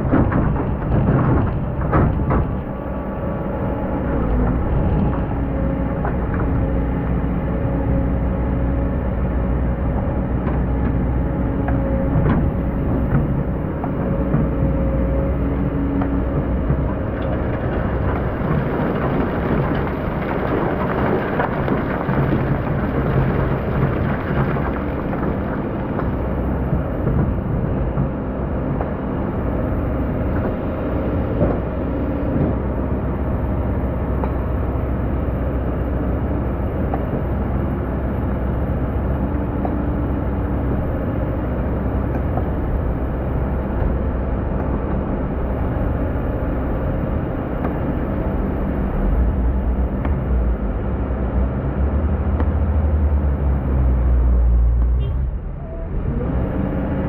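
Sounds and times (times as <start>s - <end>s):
excavator diesel engine droning: 0.0s - 57.0s
bucket crackling through sand: 17.3s - 26.8s.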